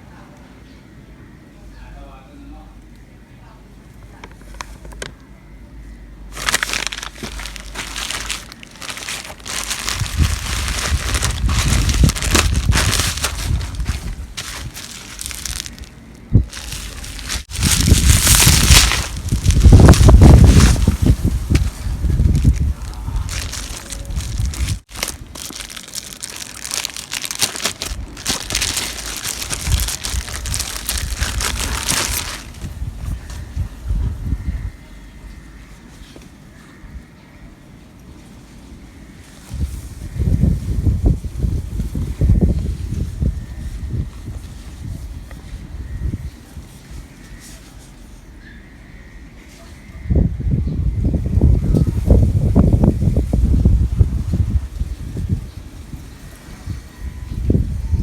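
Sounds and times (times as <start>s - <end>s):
packaging crinkling and rustling: 6.3s - 33.4s.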